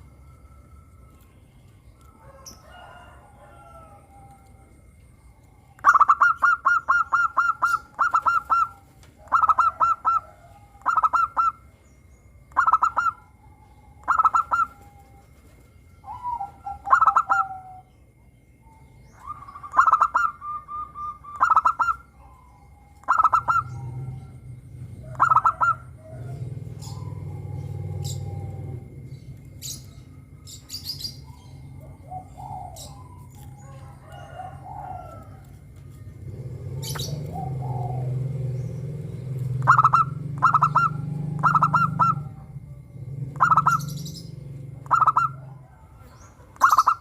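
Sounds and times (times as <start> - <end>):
dove cooing: 2.0 - 11.7, 12.3 - 47.0.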